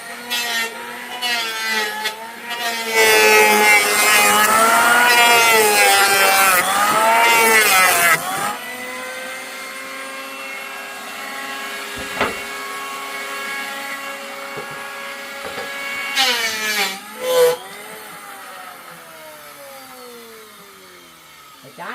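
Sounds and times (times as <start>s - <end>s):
motor humming: 11.9s - 12.7s
sharp knock: 12.0s - 12.6s.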